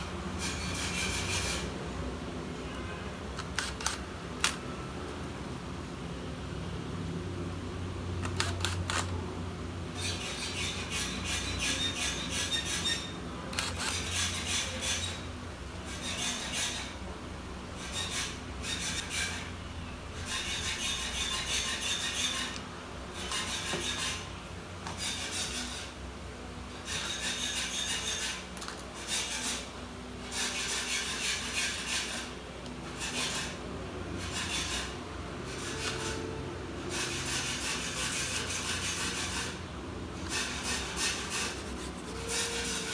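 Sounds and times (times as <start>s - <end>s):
hand tool scraping plastic: 40.2s - 42.9s.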